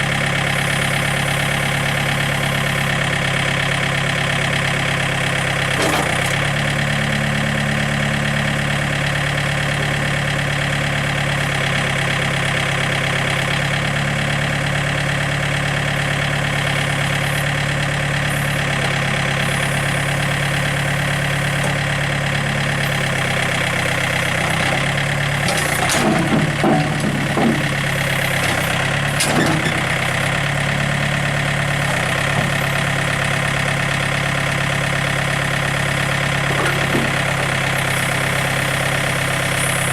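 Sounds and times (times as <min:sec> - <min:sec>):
diesel engine idling: 0:00.0 - 0:39.9
knocks and rattles: 0:25.4 - 0:30.1.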